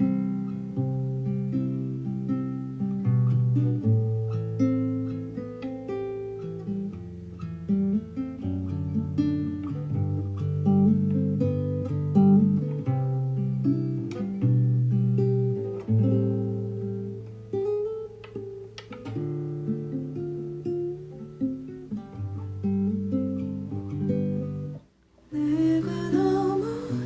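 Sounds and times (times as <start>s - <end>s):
acoustic guitar chords: 0.0s - 27.0s
person singing: 25.3s - 27.0s.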